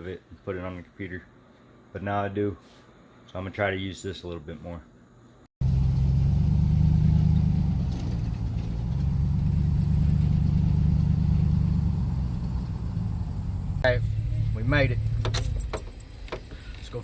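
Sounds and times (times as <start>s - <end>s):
vehicle engine and road hum: 5.6s - 17.0s.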